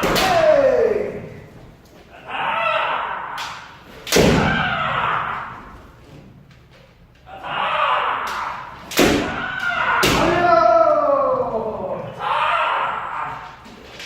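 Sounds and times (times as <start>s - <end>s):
person shouting: 0.0s - 1.4s, 9.3s - 13.6s.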